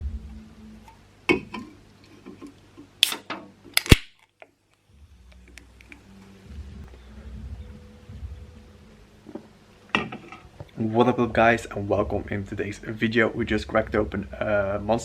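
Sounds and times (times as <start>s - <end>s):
can ring-pull cracking open: 3.0s - 4.4s.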